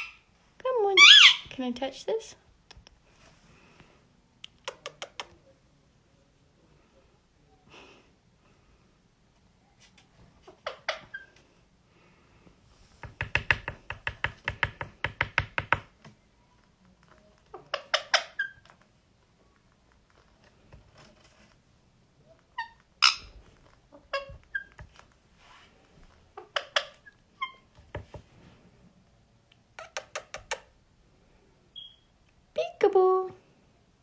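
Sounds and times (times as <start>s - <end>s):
parrot squeaky chirps: 1.0s - 1.5s, 4.5s - 5.3s, 22.6s - 23.4s, 29.8s - 30.7s, 31.8s - 32.1s
parrot rapid clicks: 4.4s - 5.4s, 29.5s - 30.7s.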